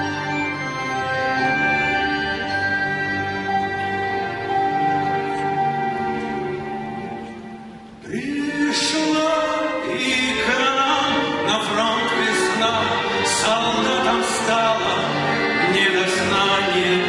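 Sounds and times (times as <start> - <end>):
chamber orchestra playing: 0.0 - 17.0
man singing: 8.0 - 17.0.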